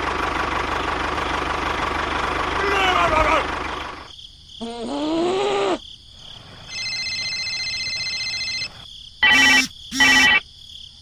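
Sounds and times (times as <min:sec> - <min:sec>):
high-pitched electronic tone: 0:09.2 - 0:10.4
short loud beeps: 0:09.2 - 0:10.4.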